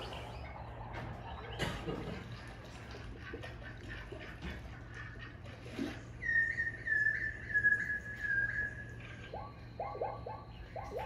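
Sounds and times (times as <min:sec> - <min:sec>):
faint ticking and chirping: 0:06.1 - 0:11.0
bird whistled call: 0:06.2 - 0:11.0.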